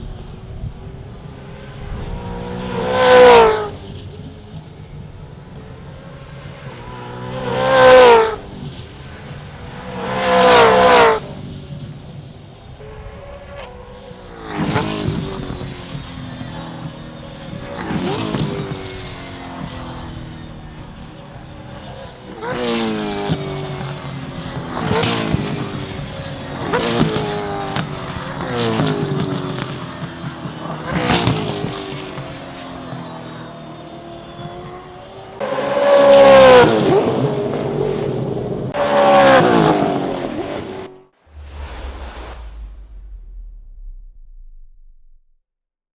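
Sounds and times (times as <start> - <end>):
race cars passing at speed: 0.0 - 42.4
brief hiss: 41.2 - 45.2
low rumble: 41.2 - 45.4.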